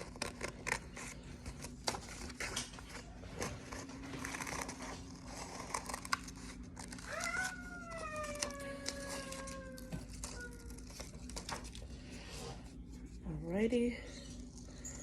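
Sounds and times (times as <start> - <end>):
scissors snipping paper: 0.0 - 11.9.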